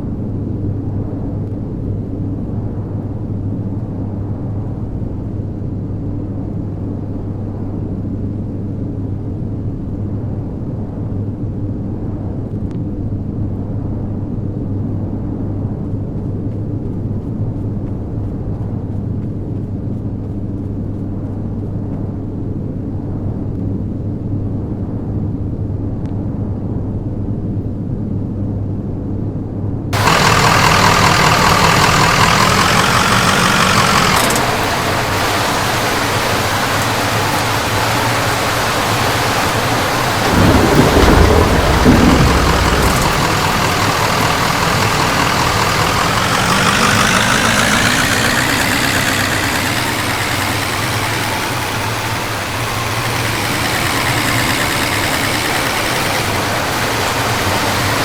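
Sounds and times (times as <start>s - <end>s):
heavy rain hitting vehicle: 30.0s - 58.0s
low thunder rumble: 30.0s - 58.0s
vehicle engine idling: 30.0s - 58.0s.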